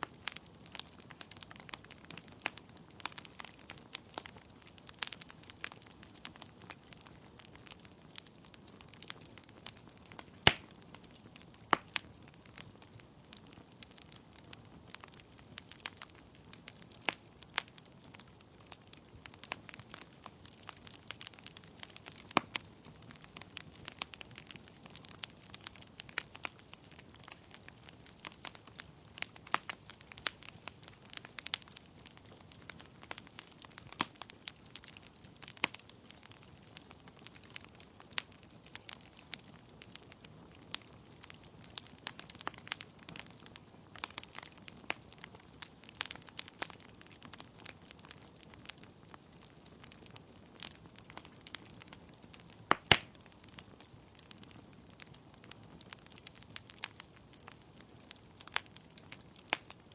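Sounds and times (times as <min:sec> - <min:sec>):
logs crackling and popping: 0:00.0 - 0:59.9.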